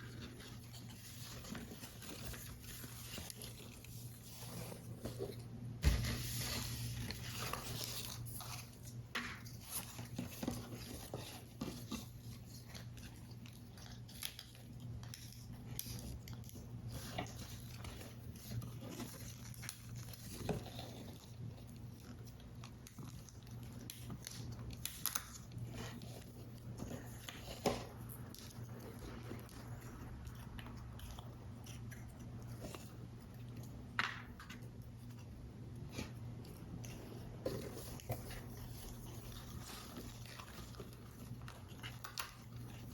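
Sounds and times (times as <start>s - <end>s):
paper rustling: 0.0s - 30.4s.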